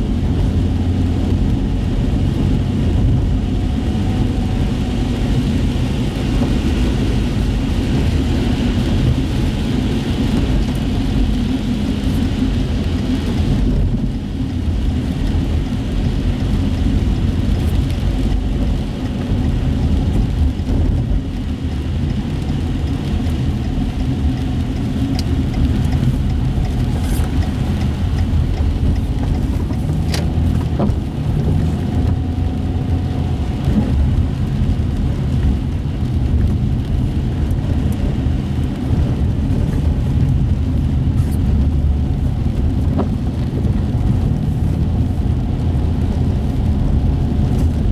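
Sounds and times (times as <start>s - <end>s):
car engine and road rumble: 0.0s - 47.9s.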